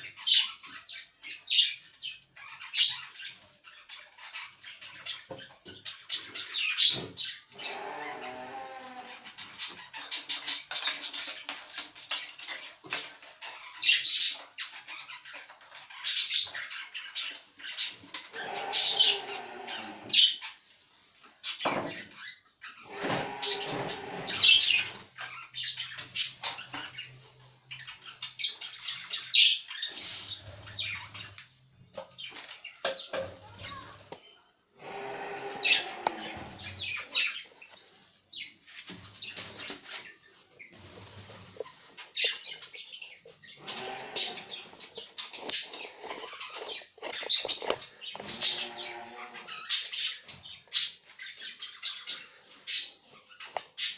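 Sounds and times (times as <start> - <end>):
budgerigars chirping and squawking: 0.0 - 34.2, 34.8 - 53.9
budgerigars chirping: 21.4 - 31.4, 41.8 - 53.9.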